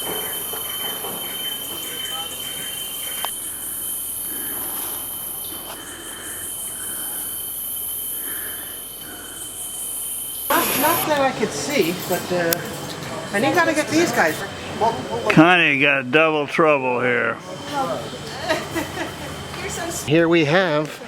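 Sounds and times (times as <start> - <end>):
insect chorus shrill: 0.0 - 15.7
thin unbroken whine: 0.0 - 20.1.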